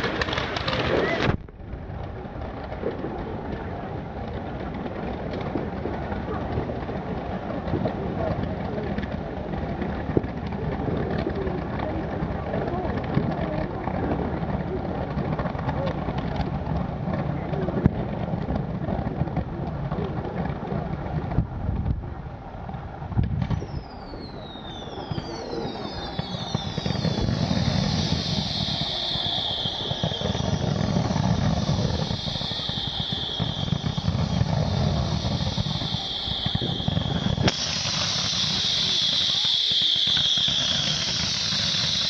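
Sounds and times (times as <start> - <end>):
low rumble: 0.0 - 42.0
whistling fireworks: 0.0 - 42.0
loud sharp hiss: 23.5 - 42.0
steady hiss: 23.6 - 42.0.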